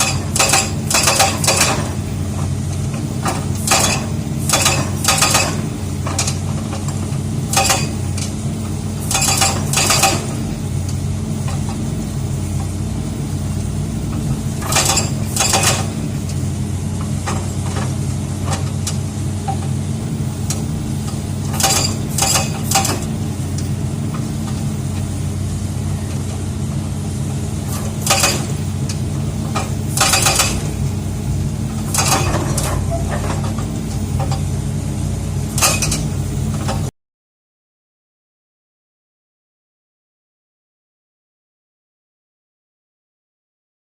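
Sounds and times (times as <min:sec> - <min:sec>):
rock breaker metallic clanking: 0:00.0 - 0:02.1, 0:02.9 - 0:08.4, 0:09.0 - 0:10.6, 0:14.2 - 0:16.4, 0:20.4 - 0:23.2, 0:27.6 - 0:31.0, 0:31.6 - 0:34.5, 0:35.5 - 0:36.9
diesel engine running: 0:00.0 - 0:36.9.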